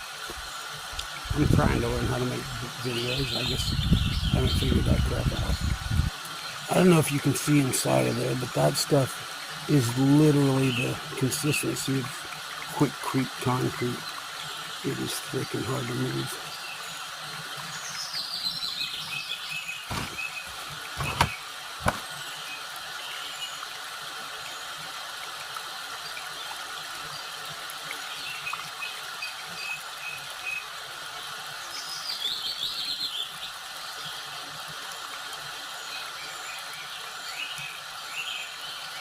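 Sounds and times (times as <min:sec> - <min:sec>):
songbird trills: 0:02.8 - 0:06.8
sharp knocks: 0:19.9 - 0:20.2, 0:21.0 - 0:22.0.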